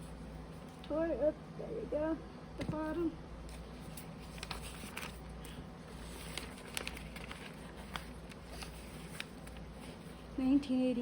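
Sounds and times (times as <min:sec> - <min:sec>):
magazine pages turning: 0:03.5 - 0:10.3.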